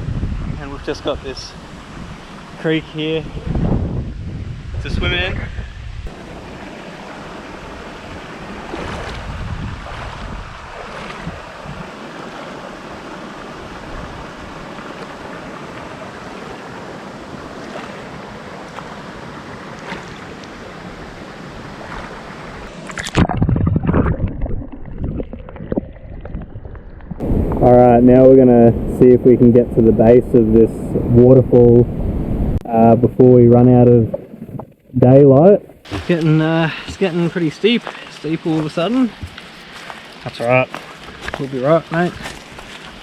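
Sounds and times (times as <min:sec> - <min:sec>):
creek and waterfall rushing: 0:06.1 - 0:22.8, 0:35.9 - 0:43.0.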